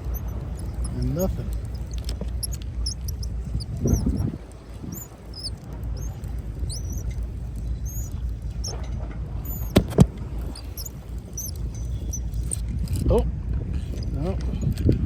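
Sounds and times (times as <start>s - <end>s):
high-pitched bird chirps: 0.0s - 4.3s, 4.9s - 7.1s, 7.8s - 8.2s, 9.5s - 9.8s, 10.6s - 12.6s
sharp clicks: 0.0s - 8.8s, 9.4s - 12.6s.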